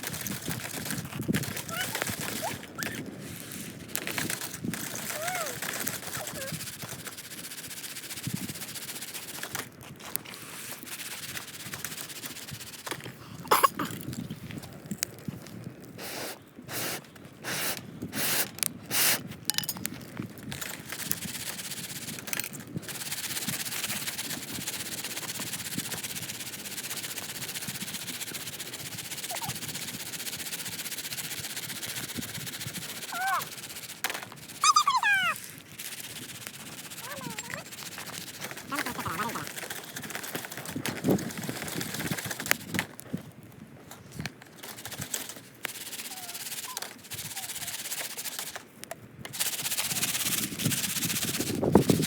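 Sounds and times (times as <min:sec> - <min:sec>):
fire hissing: 0:16.0 - 0:19.3
pan knocking and rattling: 0:19.5 - 0:19.9.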